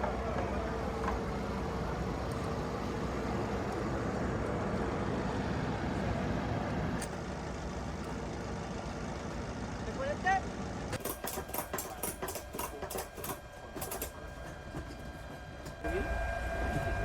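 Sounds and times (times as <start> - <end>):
engine idling rumble: 0.0 - 11.0.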